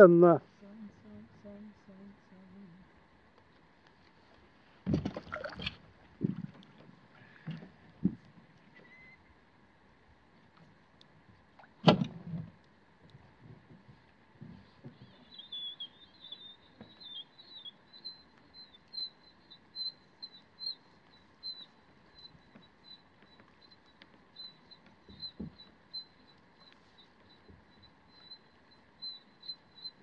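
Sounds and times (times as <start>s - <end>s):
soft knocks from boat: 4.8s - 8.6s
small bird chirping: 15.0s - 30.0s.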